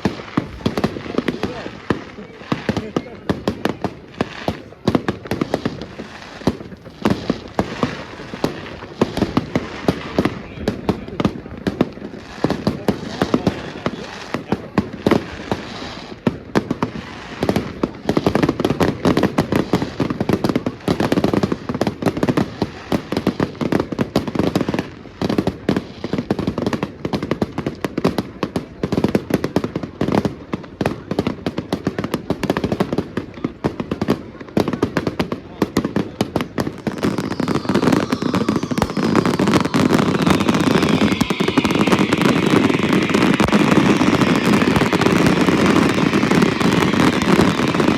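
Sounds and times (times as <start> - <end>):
fireworks whistling: 0.0 - 20.2, 35.2 - 47.9
firecrackers cracking and banging: 0.0 - 47.9.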